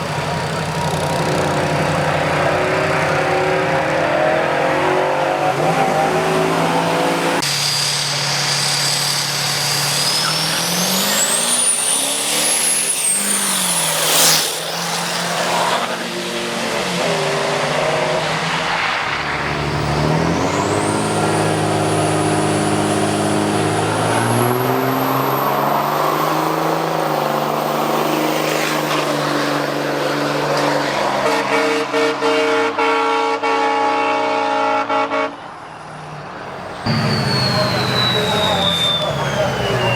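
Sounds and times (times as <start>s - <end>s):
drag racing engines: 0.0s - 33.1s, 34.8s - 39.9s
high whine rising: 7.2s - 28.0s, 36.7s - 39.9s.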